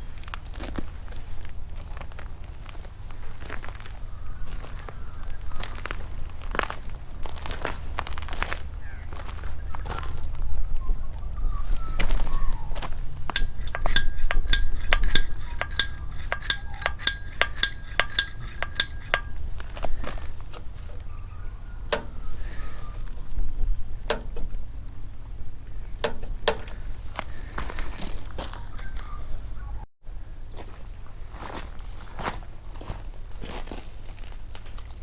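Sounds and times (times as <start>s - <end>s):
metal clinks and knocks: 13.3s - 19.4s, 26.0s - 26.8s
rapid metallic clicks ringing: 13.3s - 19.4s.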